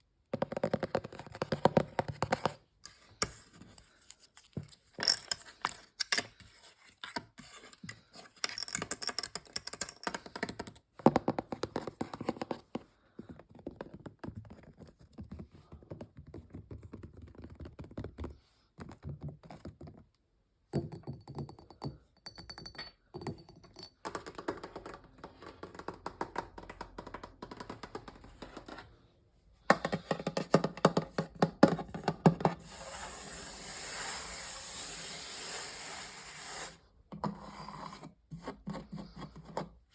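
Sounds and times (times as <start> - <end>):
fast tapping on objects: 20.8 - 28.8, 29.7 - 32.6.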